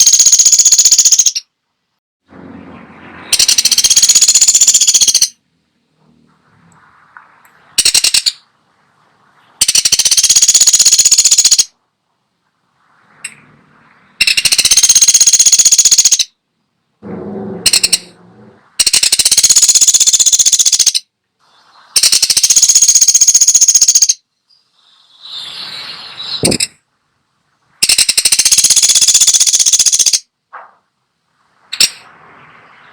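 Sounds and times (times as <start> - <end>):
woodpecker rattling call: 0.0 - 1.5, 3.3 - 5.4, 7.8 - 8.5, 9.6 - 11.8, 14.2 - 16.4, 17.6 - 18.2, 18.8 - 21.1, 22.0 - 24.2, 26.3 - 26.8, 27.8 - 30.3.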